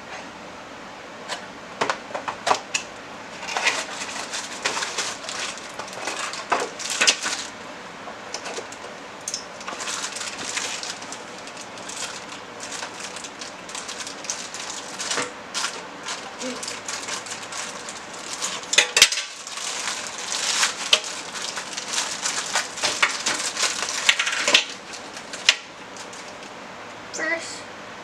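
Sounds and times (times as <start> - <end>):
objects being moved: 3.3 - 7.6, 8.4 - 26.5.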